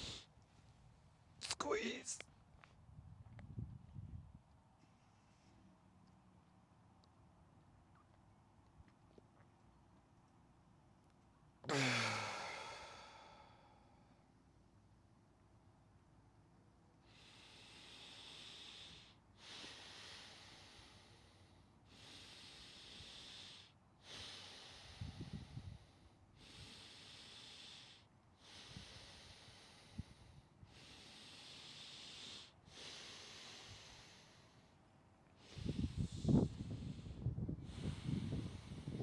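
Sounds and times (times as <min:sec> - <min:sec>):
deep breathing through mouth: 0:00.0 - 0:00.3, 0:11.7 - 0:14.2, 0:17.0 - 0:34.8, 0:35.4 - 0:39.0.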